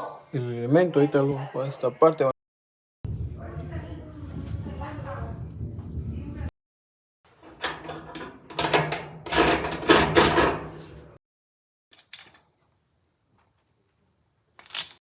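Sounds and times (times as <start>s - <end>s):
clattering knocks and scrapes: 7.3s - 11.2s.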